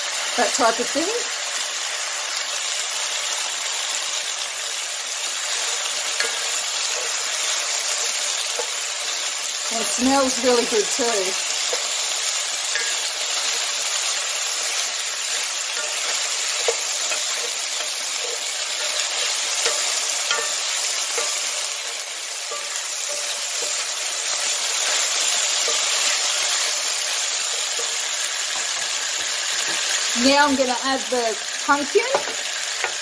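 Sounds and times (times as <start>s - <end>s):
potato and onion sizzling in a pan: 0.0s - 33.0s
wooden spoon scraping a pan: 12.7s - 30.1s.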